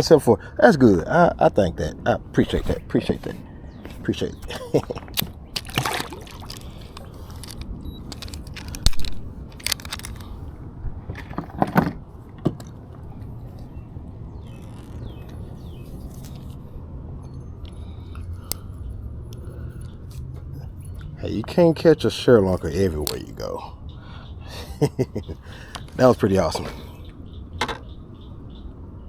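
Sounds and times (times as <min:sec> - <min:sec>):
steady low rumble: 0:00.0 - 0:29.0
handling clicks and knocks: 0:02.4 - 0:10.4, 0:11.0 - 0:13.7, 0:22.5 - 0:23.5.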